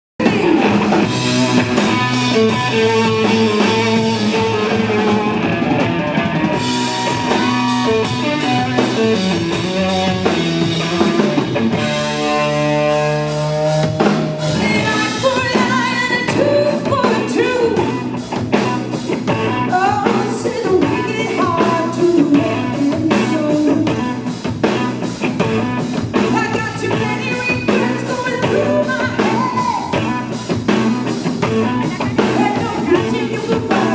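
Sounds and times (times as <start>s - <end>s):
rock band playing: 0.2s - 33.9s
person singing: 13.7s - 18.1s, 19.3s - 24.2s, 26.2s - 30.3s, 31.7s - 33.9s.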